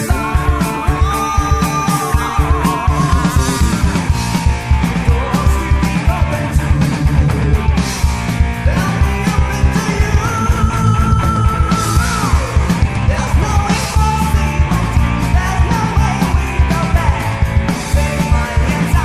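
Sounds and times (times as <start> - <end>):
heavy metal band playing: 0.0 - 19.0.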